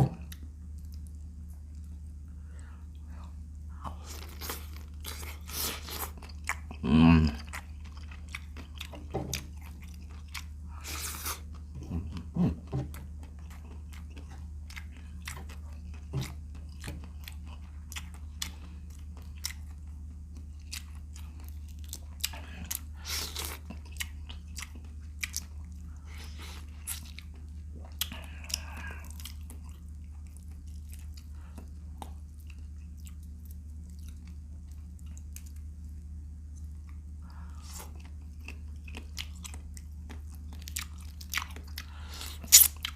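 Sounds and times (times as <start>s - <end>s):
steady low hum: 0.0s - 42.9s
crunchy chewing and biting: 3.1s - 42.9s.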